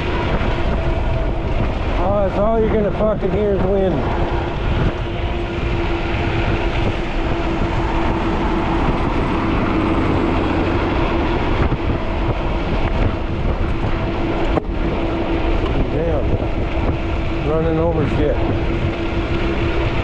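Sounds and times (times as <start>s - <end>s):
bike motor and tyres humming: 0.0s - 20.0s
wind buffeting microphone: 0.0s - 20.0s.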